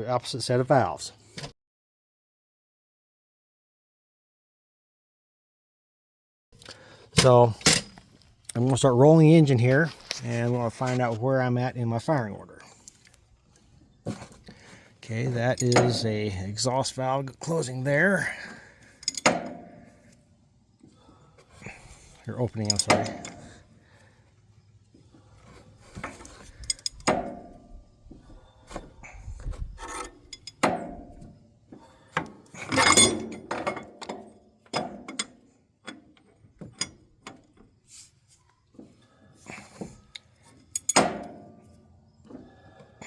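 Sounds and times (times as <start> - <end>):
hand tools clinking on metal: 15.2 - 16.4, 18.2 - 19.6, 22.5 - 23.6, 26.0 - 27.5, 29.9 - 30.7, 32.6 - 35.4, 40.6 - 41.3.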